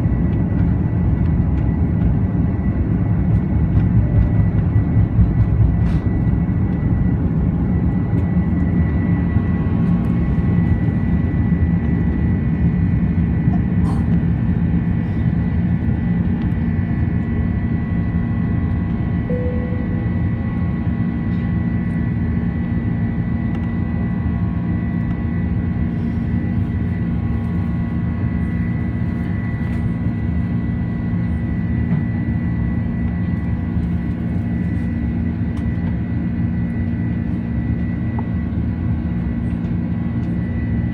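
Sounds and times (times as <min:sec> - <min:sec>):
jet cabin engine rumble: 0:00.0 - 0:40.9
thin steady whine: 0:19.0 - 0:33.6.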